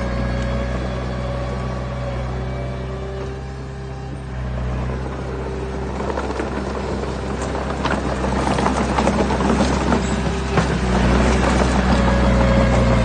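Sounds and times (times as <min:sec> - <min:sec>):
diesel engine running under load: 0:00.0 - 0:13.0
rocks knocking and scraping: 0:05.0 - 0:13.0.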